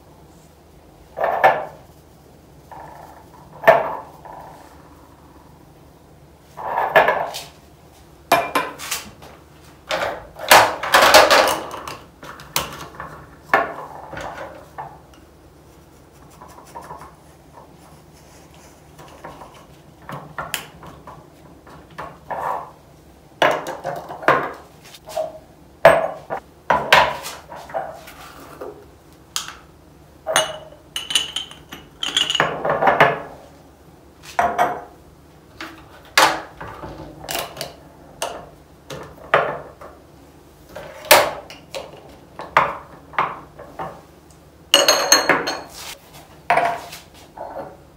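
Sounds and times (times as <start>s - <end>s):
jars clinking and knocking: 30.3s - 33.2s, 44.8s - 45.8s.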